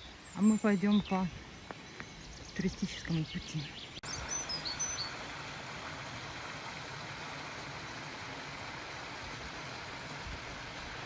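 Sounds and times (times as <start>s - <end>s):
stream water flowing: 2.6s - 11.0s.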